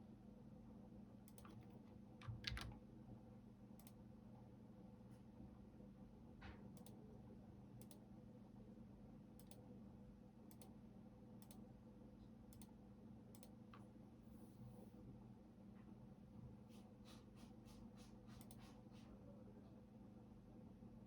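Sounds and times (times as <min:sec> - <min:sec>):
keyboard keys clicking: 0:01.3 - 0:02.8.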